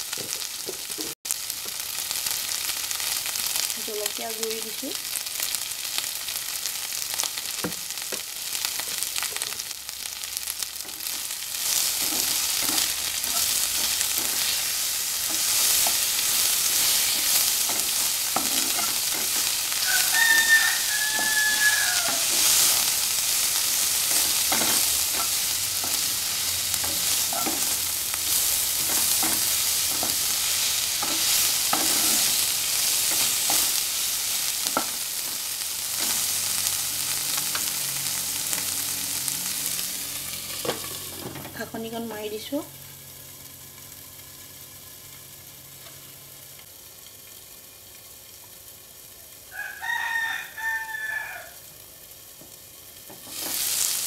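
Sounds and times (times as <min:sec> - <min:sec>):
food sizzling in oil: 0:00.0 - 0:54.0
spatula scraping and tapping pan: 0:10.9 - 0:22.9, 0:24.1 - 0:33.8, 0:34.6 - 0:35.4, 0:53.1 - 0:53.7.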